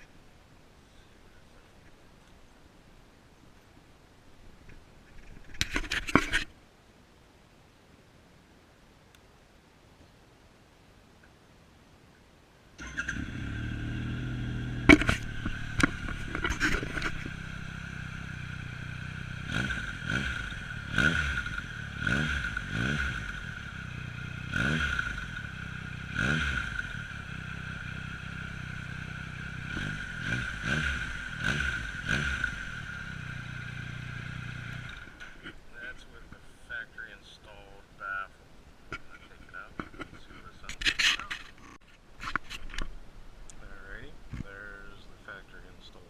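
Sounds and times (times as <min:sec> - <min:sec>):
motorcycle engine revving: 0:12.8 - 0:36.0
exhaust cracks: 0:12.8 - 0:36.8.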